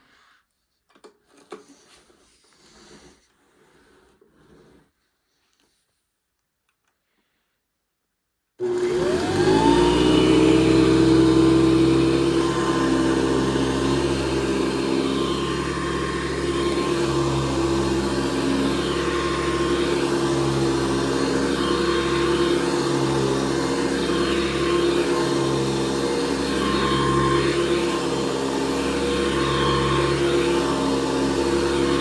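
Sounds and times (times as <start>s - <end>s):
upright vacuum cleaner motor whine: 8.6s - 32.0s.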